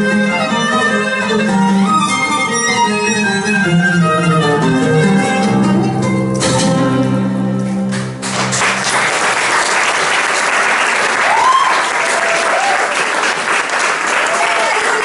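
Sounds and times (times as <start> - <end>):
held music chord: 0.0 - 8.4
audience applause: 8.0 - 15.0
audience whoops: 10.9 - 15.0.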